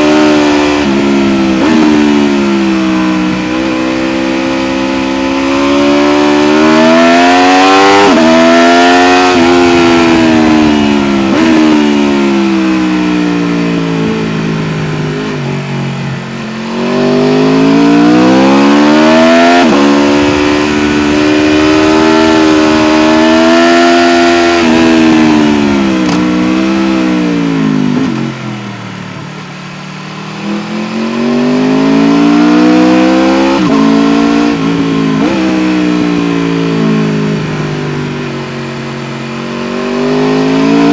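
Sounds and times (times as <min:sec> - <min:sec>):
motorcycle engine accelerating through gears: 0:00.0 - 0:40.9.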